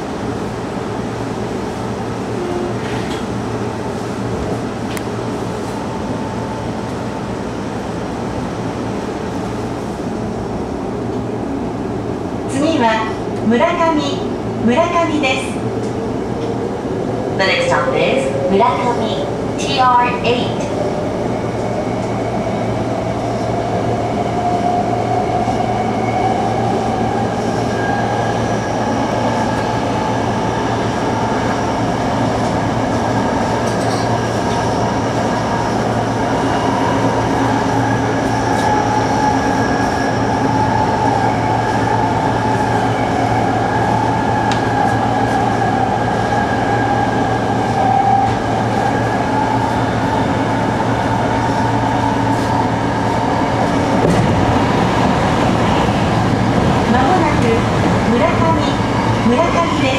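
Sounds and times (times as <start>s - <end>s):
train wheels rumbling on track: 15.6s - 59.9s.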